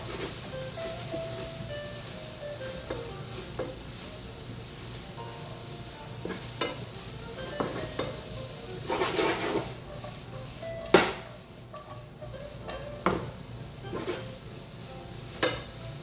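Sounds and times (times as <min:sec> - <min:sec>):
vegetables sizzling in frying pan: 0:00.0 - 0:16.0
scraping in pan: 0:08.8 - 0:10.2, 0:13.9 - 0:14.3
utensil knocking against pan: 0:10.9 - 0:12.0, 0:12.7 - 0:13.3.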